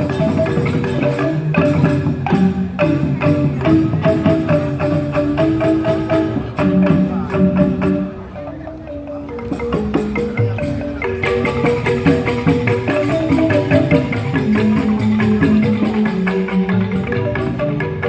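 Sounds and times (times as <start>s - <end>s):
bamboo xylophones playing: 0.0s - 18.0s
percussion: 0.0s - 18.0s.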